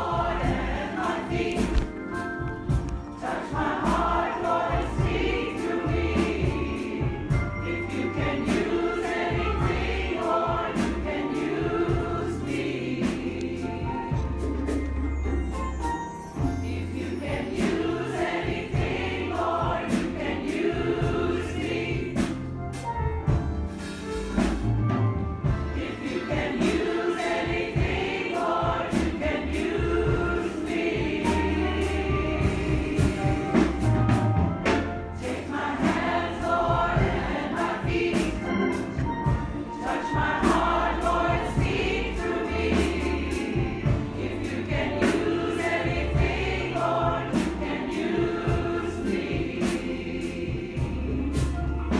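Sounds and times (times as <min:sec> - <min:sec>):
drum hits: 0:00.0 - 0:12.4, 0:17.3 - 0:51.9
congregation singing gospel: 0:00.0 - 0:15.4, 0:16.3 - 0:51.9
bass line: 0:29.0 - 0:38.6.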